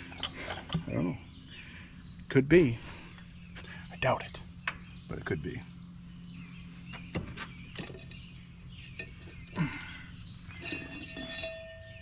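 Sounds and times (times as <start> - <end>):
steady low hum: 0.0 - 12.0
knocks and clinks on metal: 7.1 - 12.0.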